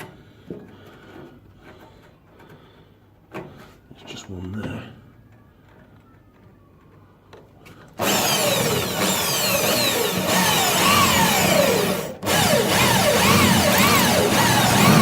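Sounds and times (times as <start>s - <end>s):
electric drill squealing into steel: 8.0s - 15.0s.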